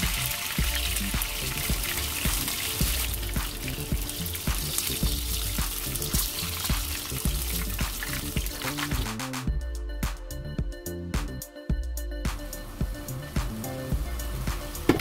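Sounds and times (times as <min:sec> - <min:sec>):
pork frying in oil: 0:00.0 - 0:09.3
background music with steady beat: 0:00.0 - 0:15.0.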